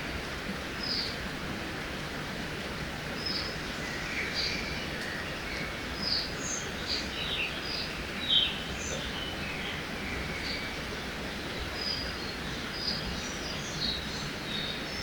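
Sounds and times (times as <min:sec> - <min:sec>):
small birds chirping: 0:03.2 - 0:10.8.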